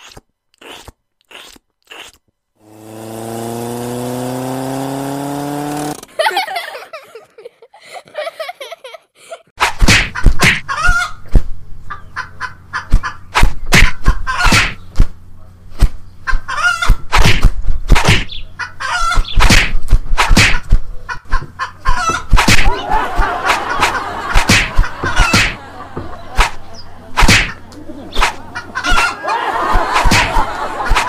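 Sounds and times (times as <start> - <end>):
chickens squawking loudly: 10.6 - 11.3, 14.0 - 14.6, 16.2 - 17.0, 18.3 - 19.4, 20.6 - 26.9, 27.5 - 31.0.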